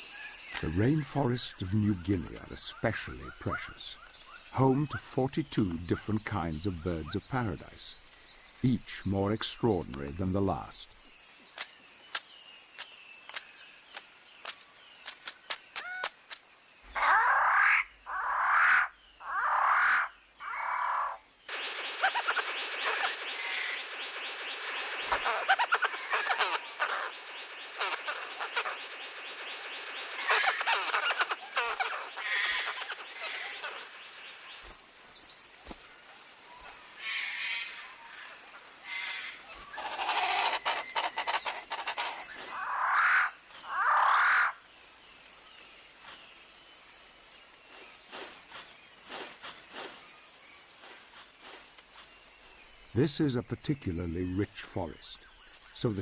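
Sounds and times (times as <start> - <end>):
loud bird calls: 0.0 - 56.0
chorus of rapid chirping: 16.9 - 35.8, 38.9 - 44.6, 47.7 - 56.0.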